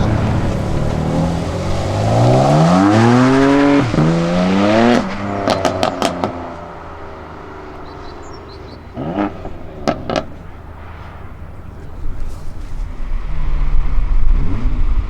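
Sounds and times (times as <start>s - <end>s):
sharp exhaust pops: 0.0s - 7.0s, 8.9s - 11.1s
car engine accelerating hard: 0.0s - 15.0s.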